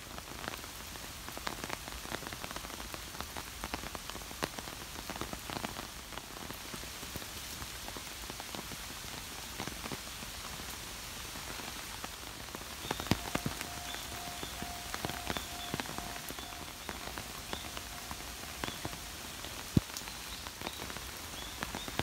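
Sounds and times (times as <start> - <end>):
steady rain falling: 0.0 - 22.0
raindrops tapping: 11.9 - 22.0.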